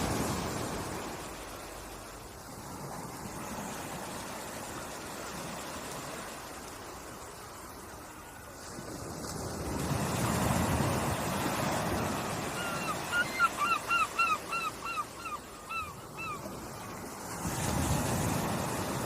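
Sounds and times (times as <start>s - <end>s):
surf washing in: 0.0s - 19.0s.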